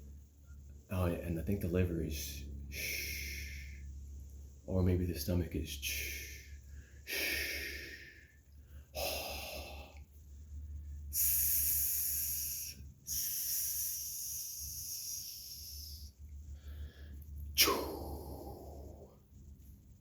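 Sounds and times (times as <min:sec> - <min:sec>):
forceful burst of breath: 0:02.7 - 0:03.8, 0:06.0 - 0:10.0, 0:11.1 - 0:19.1
man exhaling hissing shhh: 0:02.7 - 0:04.0, 0:05.9 - 0:10.1, 0:11.1 - 0:19.2.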